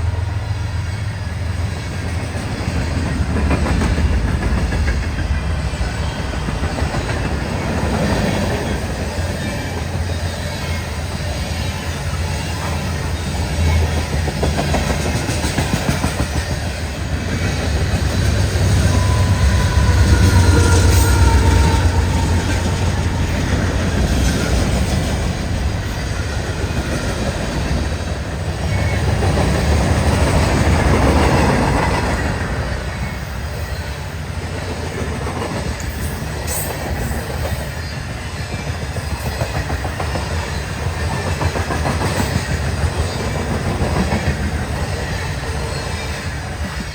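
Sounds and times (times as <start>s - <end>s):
train rumbling past: 0.0s - 46.9s
faint wheel squeal: 18.7s - 24.8s.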